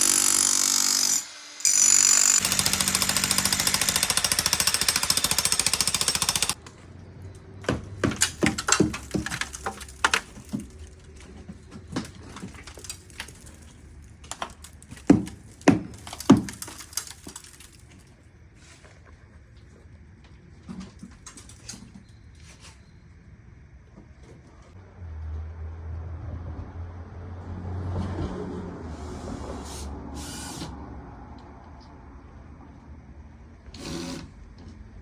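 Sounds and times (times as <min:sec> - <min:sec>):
jackhammer running: 0:00.0 - 0:06.6
sharp knocks and clatters: 0:07.6 - 0:13.5, 0:14.3 - 0:17.6.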